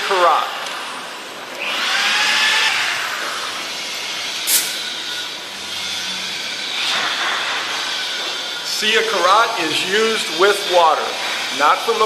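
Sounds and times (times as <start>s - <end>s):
brief sharp hiss: 4.5s - 4.8s.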